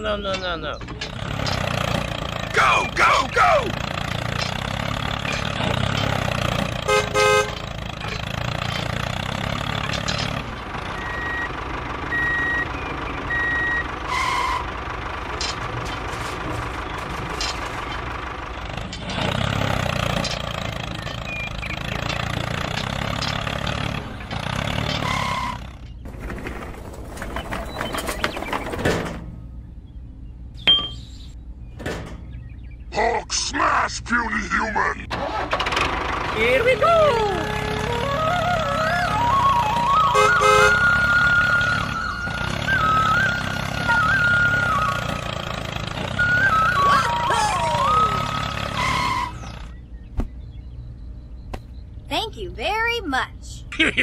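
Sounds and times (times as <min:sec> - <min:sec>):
tractor engine running: 0:00.0 - 0:32.9, 0:35.0 - 0:54.0
horn toot: 0:06.8 - 0:07.6, 0:40.0 - 0:41.2, 0:46.9 - 0:49.6
reversing beeps: 0:11.0 - 0:14.5.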